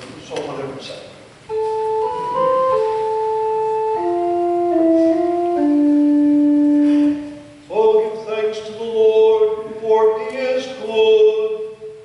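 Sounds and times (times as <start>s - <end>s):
church organ playing chords: 1.5s - 8.2s.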